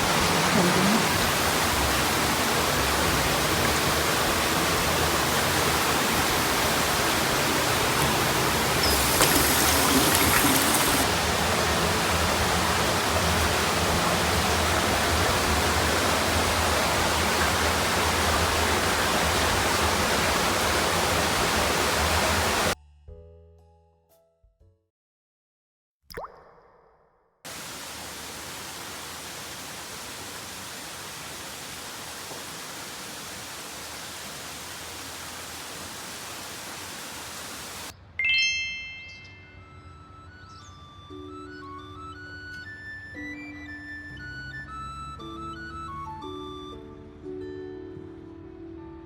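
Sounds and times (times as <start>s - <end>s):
river water rushing: 0.0s - 22.8s, 27.5s - 37.9s.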